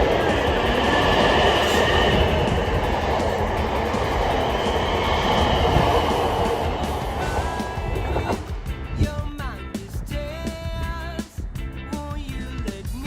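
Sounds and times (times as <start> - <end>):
train wheels on rails: 0.0 - 9.4.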